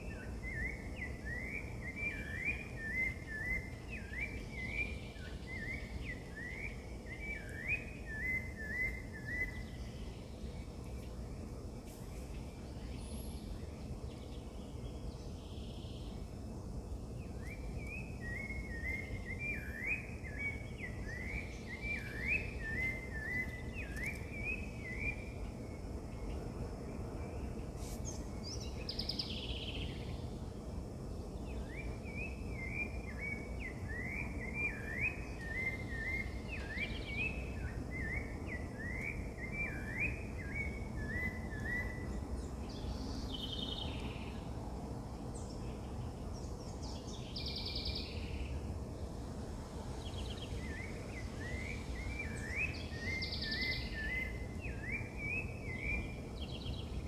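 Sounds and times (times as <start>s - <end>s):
low outdoor background noise: 0.0s - 57.0s
songbird singing quick notes: 17.4s - 25.4s, 50.0s - 57.0s.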